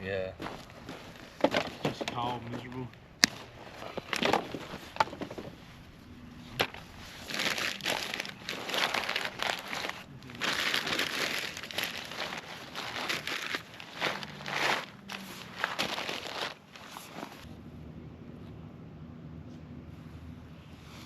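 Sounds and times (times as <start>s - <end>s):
dry wood crunching and crackling: 0.4s - 5.6s, 6.6s - 17.5s.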